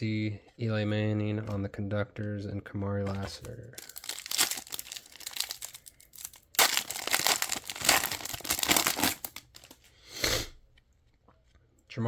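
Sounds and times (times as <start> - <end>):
foil wrapper crinkling and tearing: 3.8 - 9.8.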